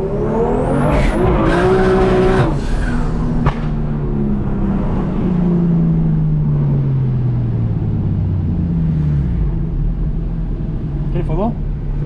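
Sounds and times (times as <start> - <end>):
car engine pulling hard: 0.0 - 12.0
sharp snap: 3.4 - 3.9.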